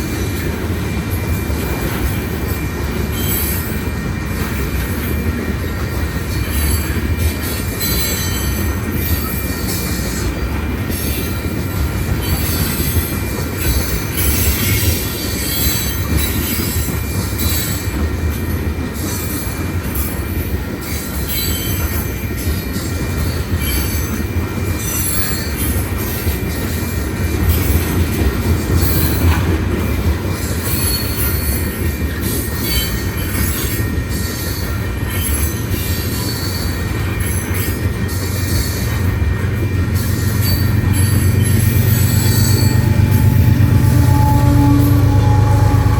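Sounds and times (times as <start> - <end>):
wheel squeal: 30.3 - 45.9
freight cars rumbling past: 39.8 - 45.9.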